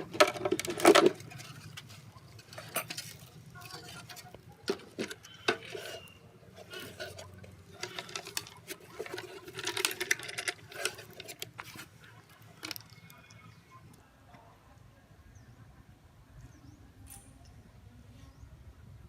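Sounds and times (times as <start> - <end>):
tools clicking and tapping on metal: 4.0 - 11.8.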